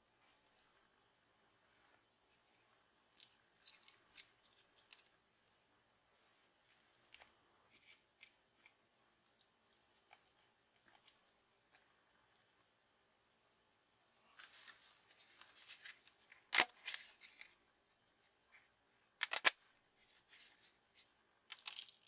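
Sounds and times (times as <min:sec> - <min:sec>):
clicks and snips of hand work: 0:19.2 - 0:19.6.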